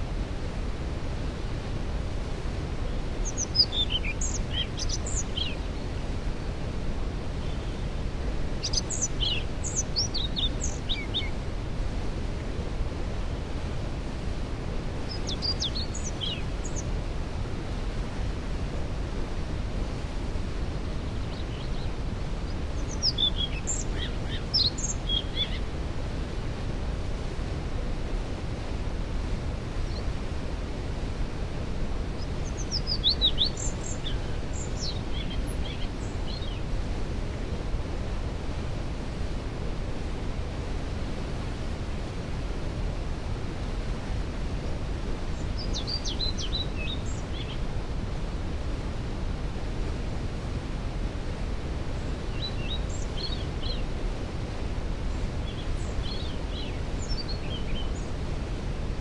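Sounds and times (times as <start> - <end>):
waterfall rushing: 0.0 - 59.0
songbird singing: 2.8 - 6.2, 7.2 - 11.4, 14.7 - 17.0, 21.1 - 25.7, 32.1 - 36.8, 45.4 - 47.7, 52.0 - 54.4, 55.0 - 58.2.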